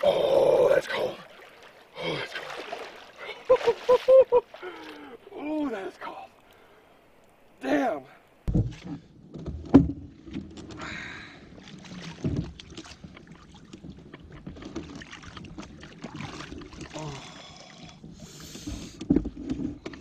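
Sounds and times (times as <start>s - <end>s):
water splashes: 0.0s - 20.0s
knocks against canoe hull: 8.5s - 10.4s.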